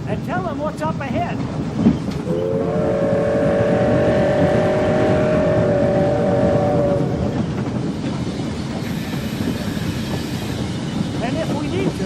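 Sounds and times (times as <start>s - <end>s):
moving train rumble: 0.0s - 12.0s
steam locomotive whistle: 2.2s - 7.3s.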